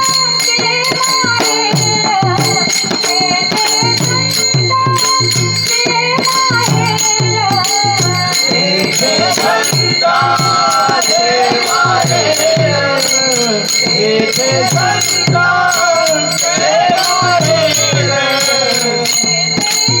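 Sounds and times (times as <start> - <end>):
girl singing: 0.0 - 12.8
jingling hand cymbals: 0.0 - 20.0
steady drum beat: 0.0 - 20.0.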